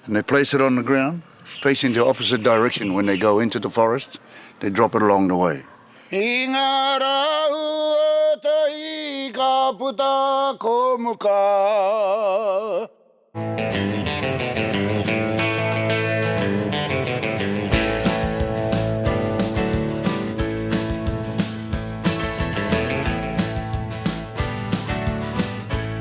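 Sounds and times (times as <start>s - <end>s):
person singing with vibrato: 6.1s - 13.1s
strummed guitar music: 13.4s - 26.0s.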